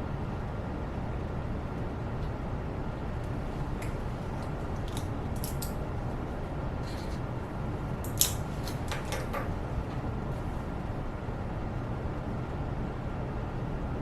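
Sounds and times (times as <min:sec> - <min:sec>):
clicks of objects handled at desk: 0:08.1 - 0:09.6.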